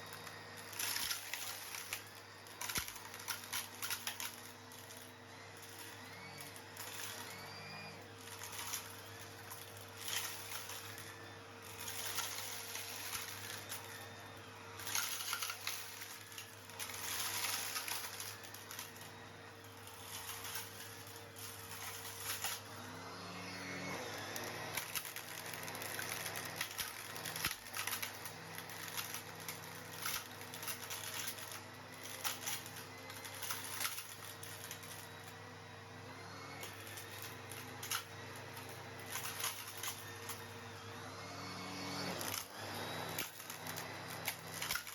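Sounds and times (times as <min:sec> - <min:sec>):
vacuum cleaner motor hum: 0:00.0 - 0:44.9
stones rattling through hose: 0:14.7 - 0:22.7, 0:24.3 - 0:35.2, 0:42.2 - 0:44.9.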